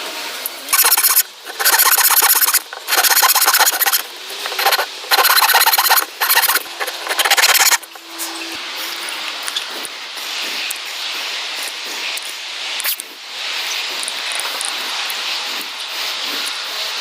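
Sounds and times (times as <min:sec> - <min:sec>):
hand tool rasping wood: 0:00.7 - 0:08.0.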